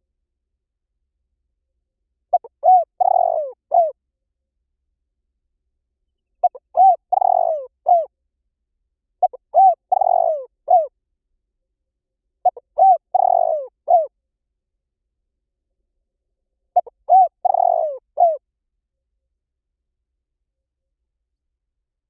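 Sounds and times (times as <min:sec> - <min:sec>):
dove cooing: 0:02.3 - 0:04.0, 0:06.4 - 0:08.1, 0:09.2 - 0:10.9, 0:12.4 - 0:14.1, 0:16.8 - 0:18.4.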